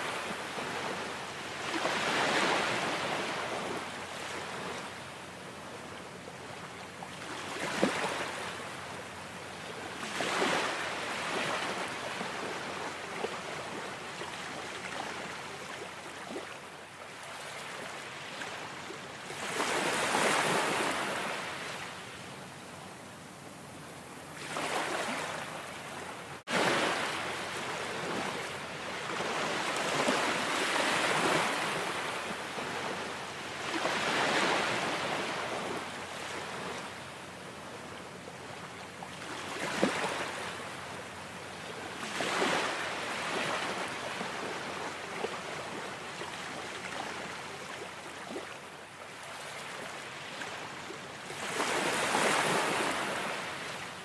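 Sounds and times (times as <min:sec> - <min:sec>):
ocean waves breaking: 0:00.0 - 0:05.0, 0:09.8 - 0:22.0, 0:24.4 - 0:37.7, 0:41.6 - 0:48.6, 0:49.2 - 0:53.9.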